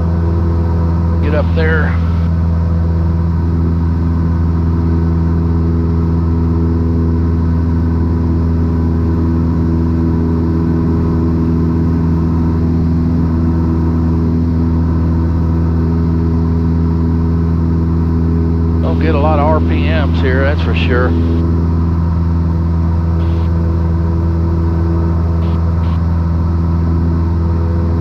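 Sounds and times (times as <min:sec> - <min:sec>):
light aircraft engine droning: 0:00.0 - 0:28.0.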